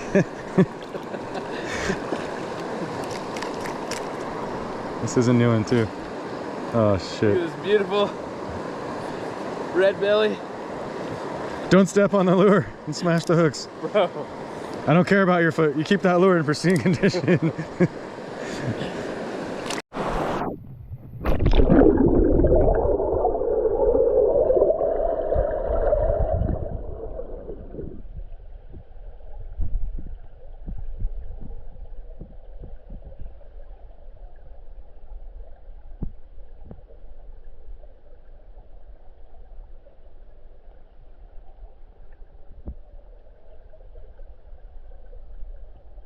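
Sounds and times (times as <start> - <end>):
underwater river gurgling rush: 18.1 - 28.3
low underwater rumble: 20.4 - 46.0.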